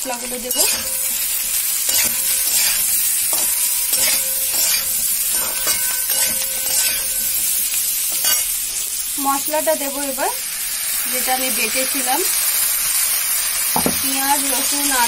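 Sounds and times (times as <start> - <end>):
vegetables sizzling in hot oil: 0.0 - 15.0
metal spatula scraping pan: 0.2 - 8.9.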